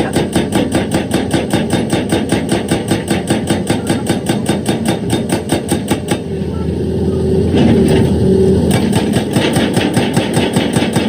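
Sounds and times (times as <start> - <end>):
hydraulic breaker hammering stone: 0.0 - 6.2, 8.7 - 11.0
machine engine running: 0.0 - 11.0.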